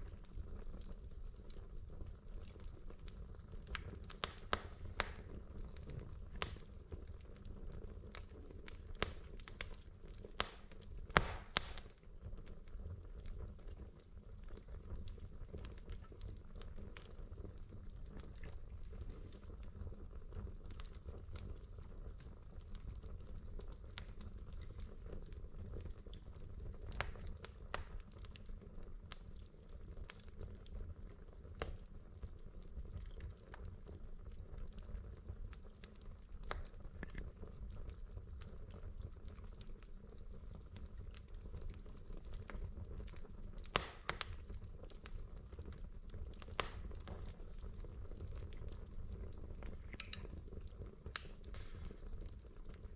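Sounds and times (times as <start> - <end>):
low rumble of flame: 0.0 - 52.9
wood fire crackling: 0.0 - 52.9
sharp pops of fire: 3.7 - 7.0, 8.4 - 12.1, 26.9 - 28.2, 43.6 - 45.2, 46.3 - 47.3, 48.2 - 52.4.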